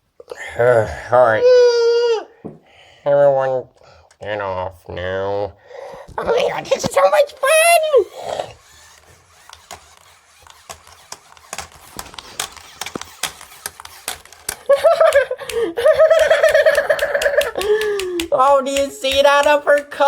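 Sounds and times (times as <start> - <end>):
plastic toy figures clicking: 6.1 - 20.0
person giggling in character voice: 14.7 - 18.2.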